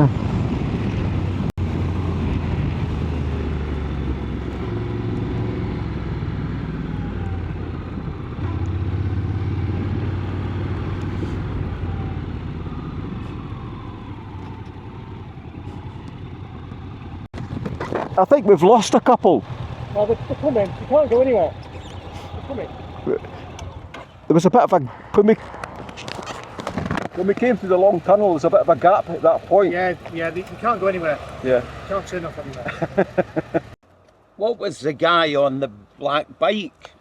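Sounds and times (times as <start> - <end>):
road and wind noise: 0.0 - 37.0
motorcycle engine running: 14.9 - 24.2.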